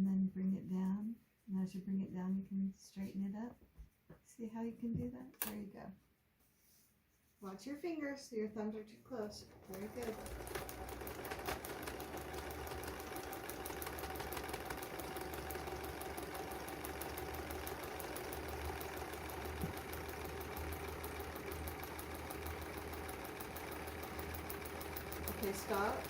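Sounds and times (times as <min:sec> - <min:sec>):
sewing machine ticking: 0:09.6 - 0:26.0.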